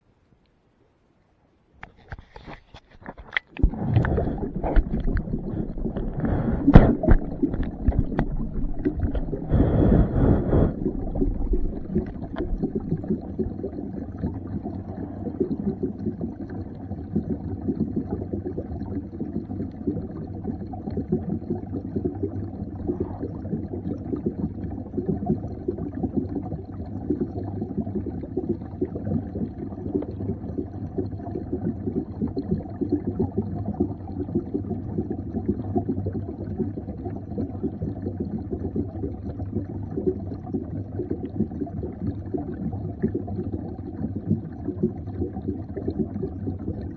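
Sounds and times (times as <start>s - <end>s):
underwater knocks: 2.8s - 13.6s
underwater rushing noise: 3.0s - 18.7s
low underwater gurgling rumble: 3.0s - 46.9s.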